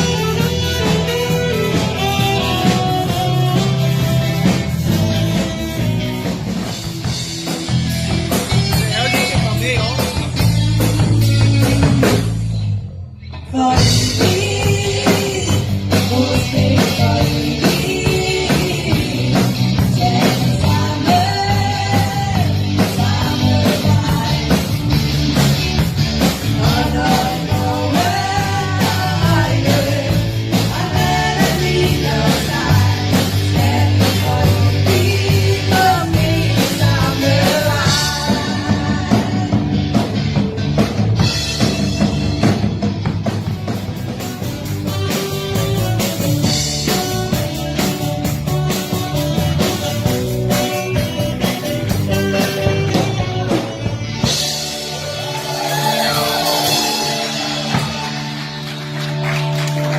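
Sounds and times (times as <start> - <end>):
live rock band playing: 0.0 - 59.9
person singing: 13.4 - 25.1, 26.4 - 40.1.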